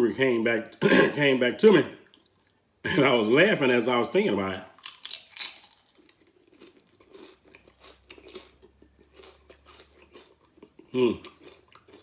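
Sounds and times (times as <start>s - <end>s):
chewing crunchy chips: 4.8s - 12.0s.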